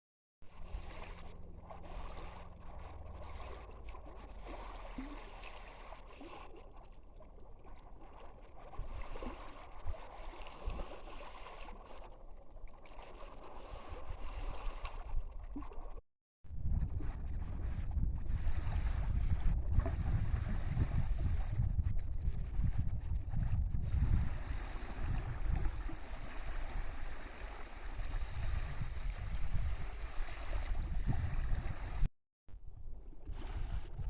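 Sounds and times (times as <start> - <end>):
small waves lapping: 0.4 - 16.0, 23.8 - 32.1, 33.1 - 34.0
wind rumble on microphone: 16.5 - 34.0.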